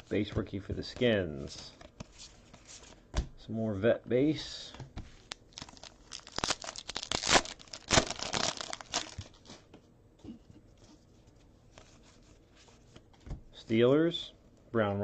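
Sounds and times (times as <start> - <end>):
cards rustling: 5.1 - 9.6
wrapper tearing and crinkling: 5.3 - 9.4.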